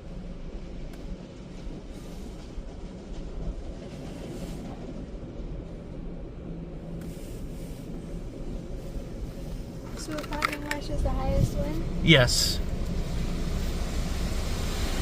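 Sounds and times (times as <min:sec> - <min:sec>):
low rumble inside car: 0:06.9 - 0:13.0
car wash hiss: 0:12.2 - 0:15.0.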